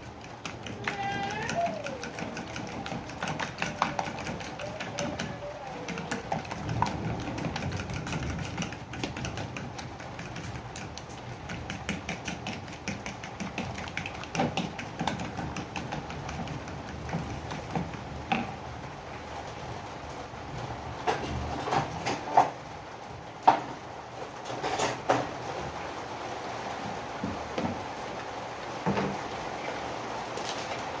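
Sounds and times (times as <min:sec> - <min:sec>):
whisk clicking against bowl: 0:00.0 - 0:18.0.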